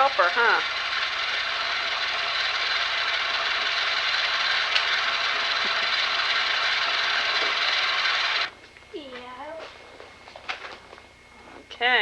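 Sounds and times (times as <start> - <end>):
ice cream maker churning: 0.0 - 8.6.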